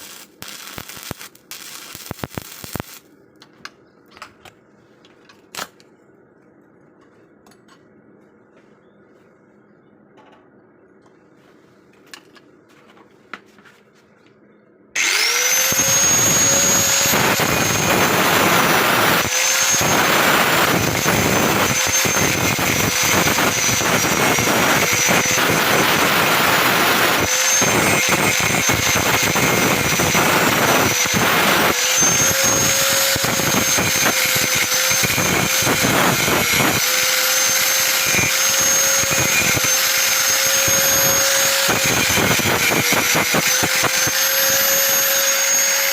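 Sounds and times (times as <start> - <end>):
angle grinder grinding metal: 0.0 - 3.0, 15.0 - 45.9.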